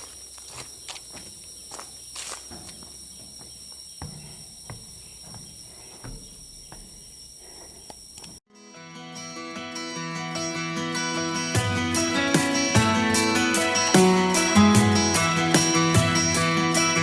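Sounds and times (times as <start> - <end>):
footsteps: 0.0 - 8.4
high-pitched insect drone: 0.0 - 8.4
knocks: 2.5 - 7.2.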